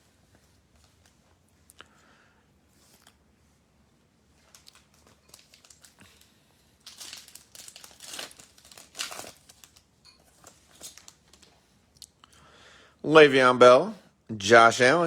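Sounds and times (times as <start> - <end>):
plastic wrapper tearing and crinkling: 4.4 - 11.6.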